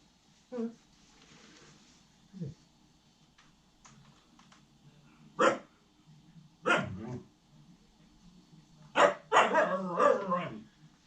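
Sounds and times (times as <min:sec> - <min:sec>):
puppy barking: 0:05.4 - 0:05.7, 0:06.6 - 0:07.1, 0:09.0 - 0:10.6.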